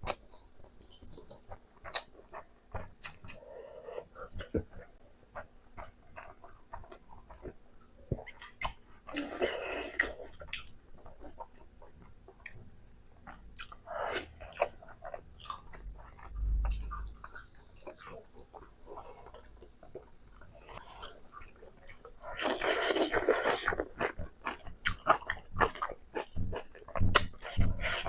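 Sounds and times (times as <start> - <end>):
person chewing and biting: 1.0 - 7.6, 13.3 - 20.1, 20.8 - 28.0.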